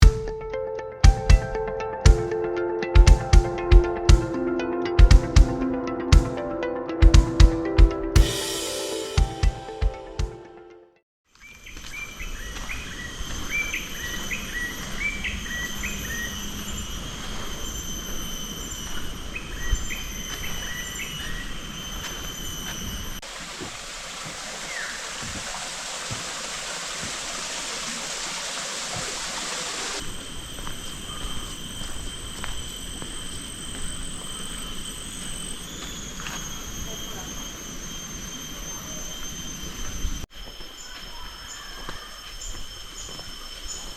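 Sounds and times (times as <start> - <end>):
loud even hiss: 8.2 - 9.8, 19.9 - 43.9
bird chirping: 11.4 - 22.9
insects trilling: 12.2 - 43.9.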